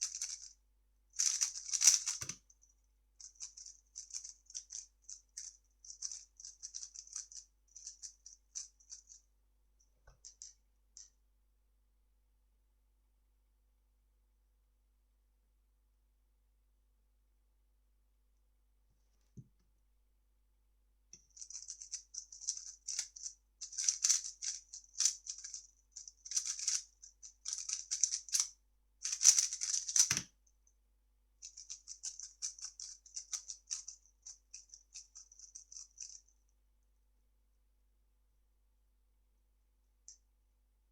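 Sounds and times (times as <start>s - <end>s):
puzzle cube clicking: 1.2s - 2.4s, 29.1s - 30.3s.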